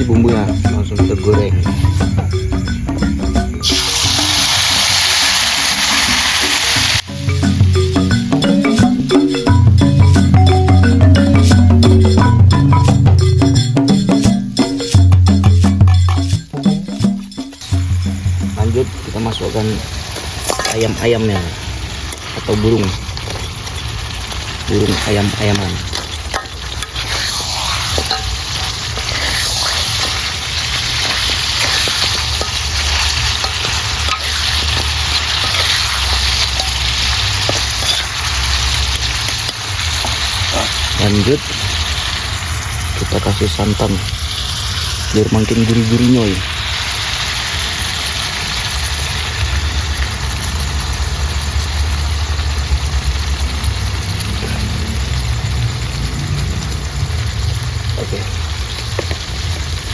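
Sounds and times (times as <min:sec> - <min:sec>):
coconut milk hissing in pan: 0:03.6 - 0:07.0, 0:19.0 - 0:59.9
meat sizzling in hot oil: 0:03.6 - 0:07.1, 0:17.6 - 0:59.9.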